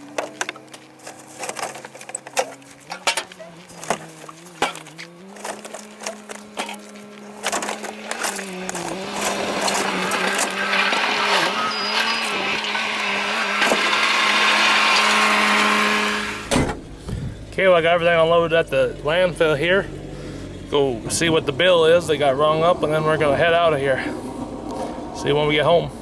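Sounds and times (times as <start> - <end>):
knocks and clunks: 0.0 - 14.2, 16.4 - 17.6
engine hum: 0.0 - 26.0.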